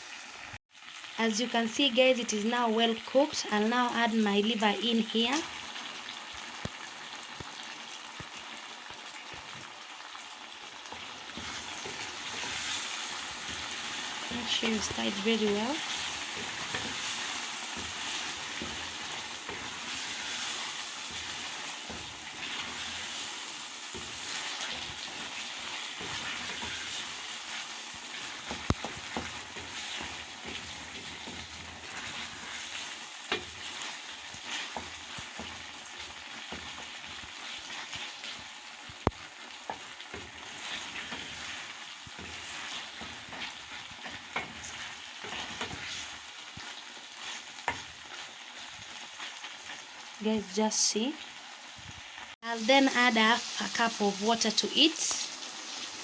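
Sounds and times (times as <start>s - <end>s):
liver sizzling in a pan: 0.0s - 56.0s.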